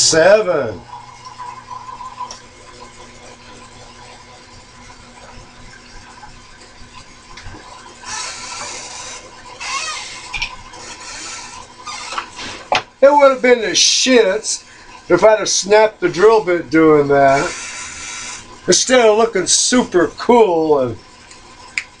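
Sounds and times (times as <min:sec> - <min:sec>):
milling machine humming: 0:00.0 - 0:21.8
drill bit squeal: 0:08.0 - 0:12.2, 0:17.3 - 0:18.5
drill bit cutting metal: 0:08.0 - 0:12.3, 0:17.2 - 0:19.1.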